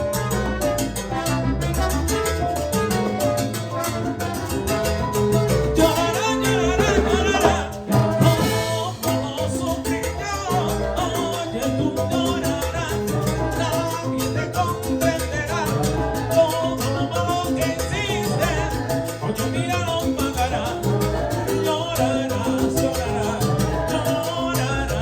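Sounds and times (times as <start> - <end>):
salsa band playing: 0.0 - 25.0
person singing: 5.8 - 14.8.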